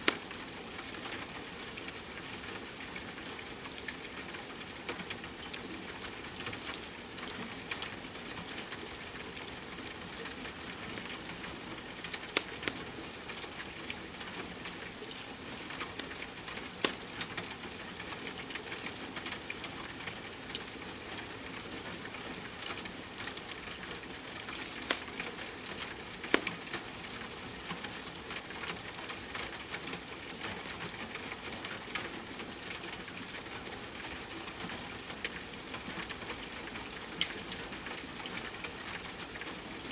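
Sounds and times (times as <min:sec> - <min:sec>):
rain hiss: 0:00.0 - 0:39.9
wood fire crackling and popping: 0:12.1 - 0:12.8, 0:16.8 - 0:17.3, 0:24.5 - 0:26.8.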